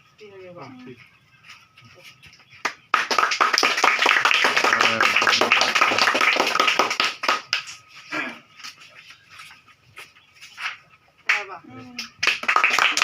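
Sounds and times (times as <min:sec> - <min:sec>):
group of people clapping: 0:02.6 - 0:07.9, 0:11.3 - 0:13.0.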